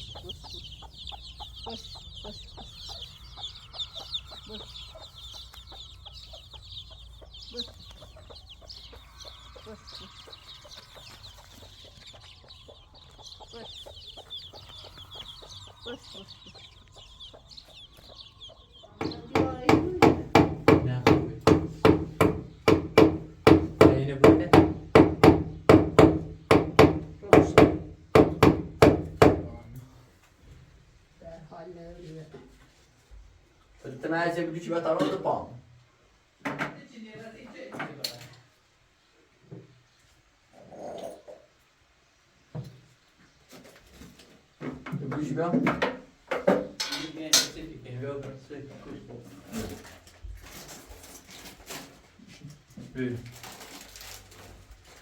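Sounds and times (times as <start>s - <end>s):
low bird clucks: 0.0s - 20.5s
birds chirping in chorus: 0.0s - 32.0s
sharp hammer-like knocks: 19.0s - 29.4s.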